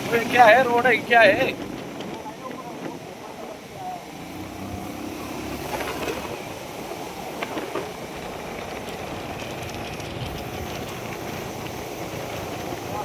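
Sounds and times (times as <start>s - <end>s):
vehicle engine and road noise: 0.0s - 13.0s
knocks and rattles: 5.6s - 11.0s.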